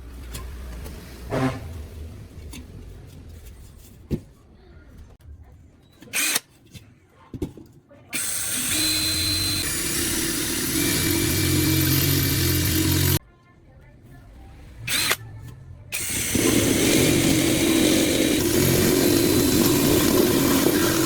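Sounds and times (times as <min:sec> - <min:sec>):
electric power tool whirring: 0:08.2 - 0:13.2, 0:14.9 - 0:15.2, 0:16.0 - 0:21.0.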